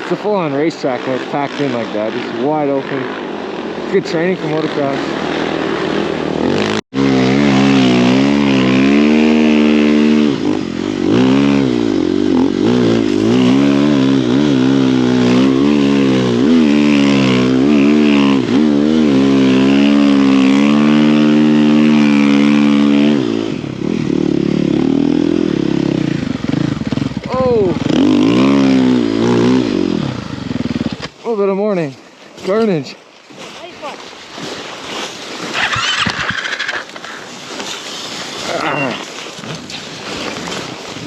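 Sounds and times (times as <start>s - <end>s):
dirt bike engine revving: 0.0s - 31.7s, 35.3s - 39.3s.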